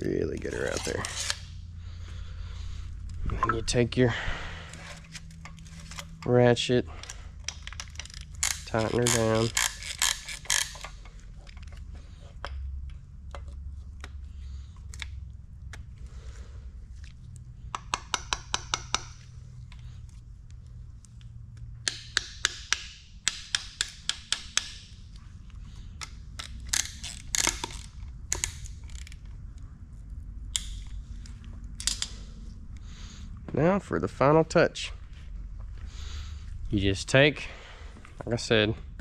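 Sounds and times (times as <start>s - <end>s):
ratchet wrench clicking: 7.0s - 11.8s, 17.7s - 19.3s, 21.8s - 25.0s, 26.0s - 29.2s.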